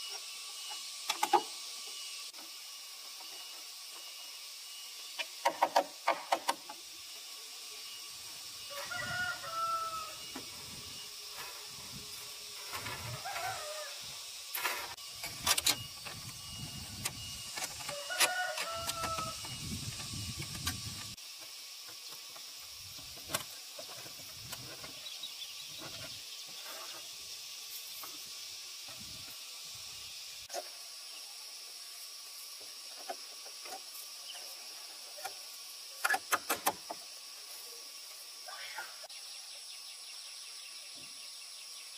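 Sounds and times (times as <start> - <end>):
steady high hiss: 0.0 - 41.9.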